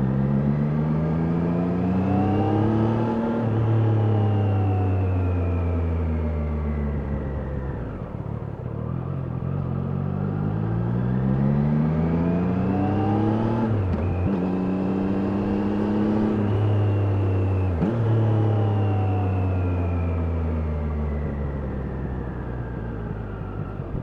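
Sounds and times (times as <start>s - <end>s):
motorcycle engine accelerating: 8.9s - 24.0s.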